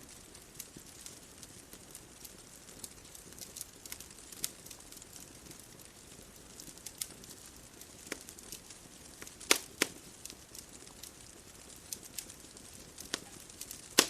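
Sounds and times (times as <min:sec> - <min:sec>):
bonfire crackling: 0:00.0 - 0:14.0
loud fire pops: 0:00.0 - 0:14.0.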